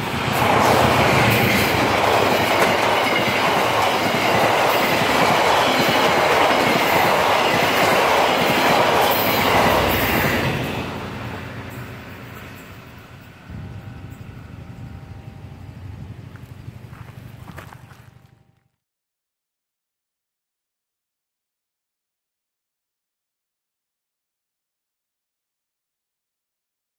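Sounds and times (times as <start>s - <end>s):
train wheels clattering: 0.0s - 14.4s.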